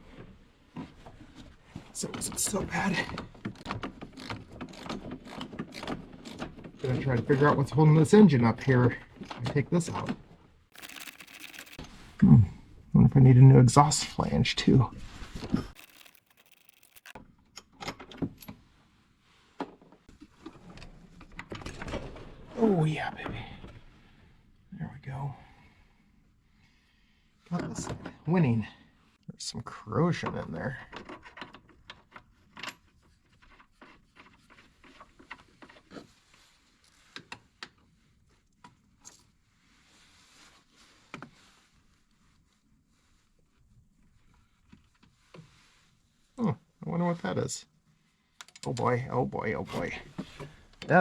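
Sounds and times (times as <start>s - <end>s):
hand tools clicking on metal: 15.8s - 17.2s.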